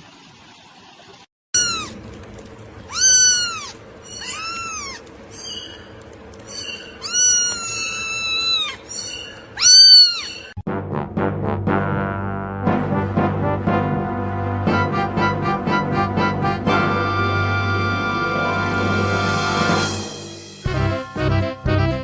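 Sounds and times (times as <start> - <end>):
cat meowing: 1.6 - 2.0, 2.9 - 5.6, 6.6 - 10.5
background music: 10.7 - 22.0.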